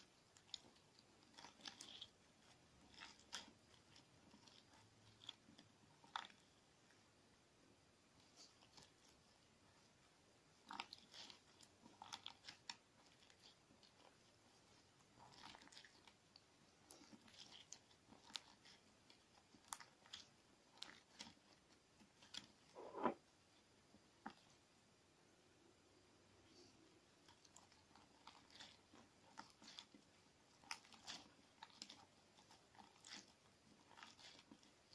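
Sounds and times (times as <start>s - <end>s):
slime with sand crunching: 8.1s - 23.2s, 27.1s - 34.9s.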